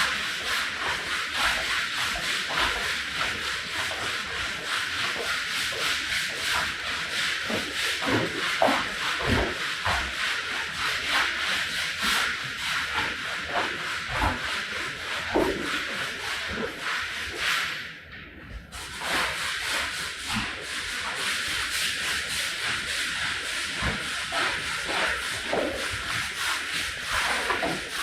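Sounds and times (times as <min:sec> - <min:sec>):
scraping a rug: 0:00.0 - 0:17.9, 0:18.7 - 0:28.0.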